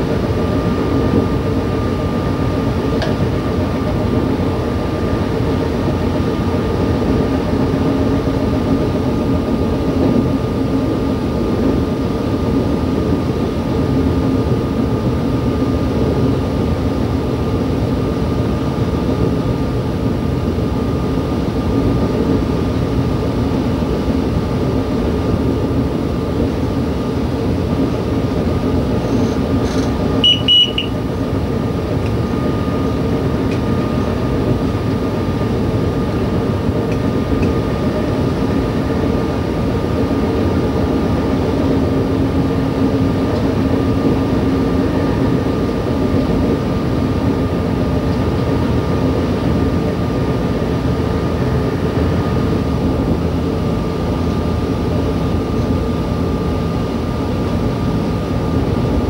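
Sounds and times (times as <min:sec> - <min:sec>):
train engine drone: 0:00.0 - 0:59.0
high whine: 0:26.5 - 0:42.1
short high beep: 0:30.2 - 0:31.0.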